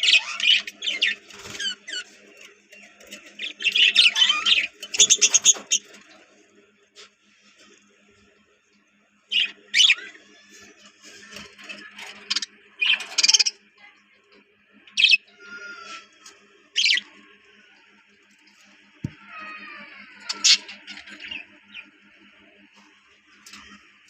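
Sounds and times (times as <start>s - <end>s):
budgerigars chirping and calling: 0.0s - 2.1s, 3.0s - 6.0s, 9.3s - 10.0s.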